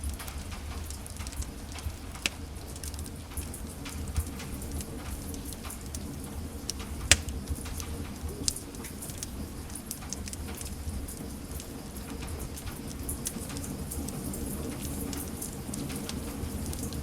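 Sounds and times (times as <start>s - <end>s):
fire pops and snaps: 0.0s - 17.0s
flames rumbling: 0.0s - 17.0s.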